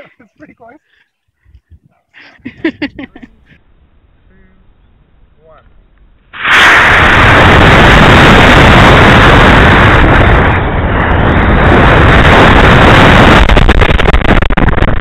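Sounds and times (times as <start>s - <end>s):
model rocket launching roar: 6.3s - 15.0s.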